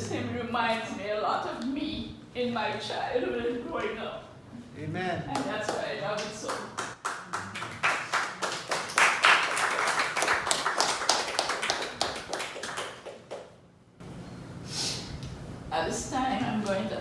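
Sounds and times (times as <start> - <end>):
people clapping: 5.3 - 13.6.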